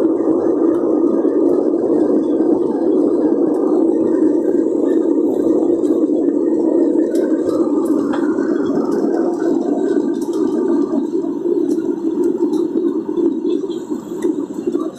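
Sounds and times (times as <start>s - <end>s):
airliner engine roar in cabin: 0.0s - 14.9s
faint clicks and rattles: 0.6s - 14.9s.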